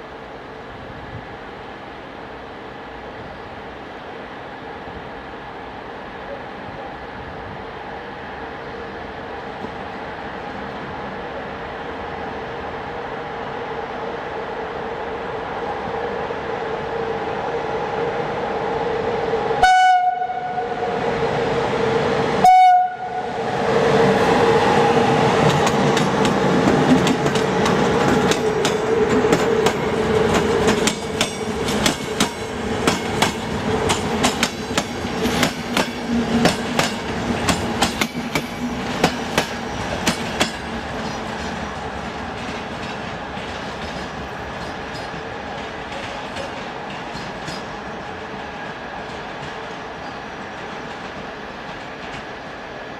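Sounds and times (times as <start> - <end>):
train running hum: 0.0 - 52.9
train horn blasts: 19.6 - 21.0, 22.4 - 23.4.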